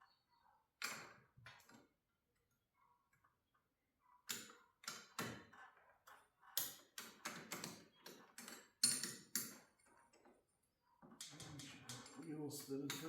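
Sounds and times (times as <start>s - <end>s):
metal clicks and knocks: 11.0s - 13.0s.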